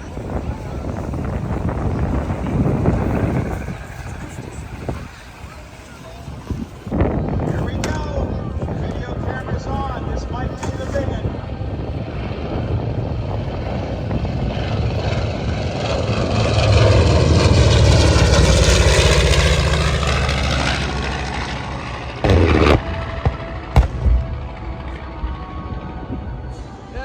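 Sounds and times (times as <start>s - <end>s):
aircraft flying past: 0.0s - 27.0s.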